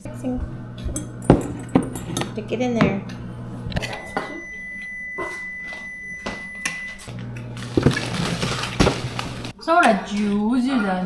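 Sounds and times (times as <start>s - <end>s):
dishes clinking: 0.8s - 3.2s.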